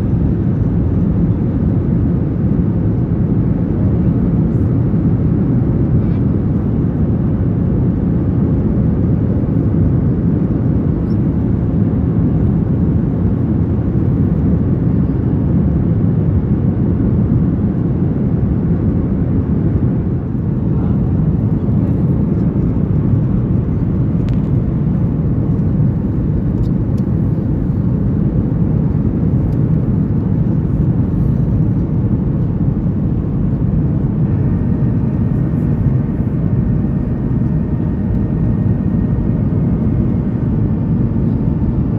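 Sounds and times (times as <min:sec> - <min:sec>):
airliner cabin engine roar: 0:00.0 - 0:41.9.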